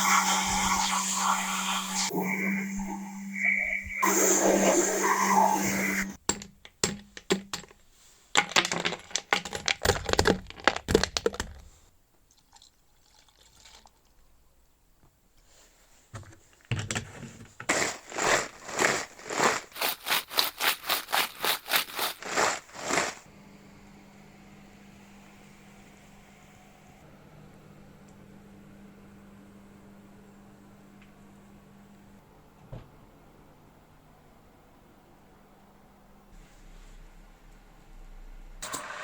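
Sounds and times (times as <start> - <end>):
quick even scraping strokes: 17.7 - 23.2.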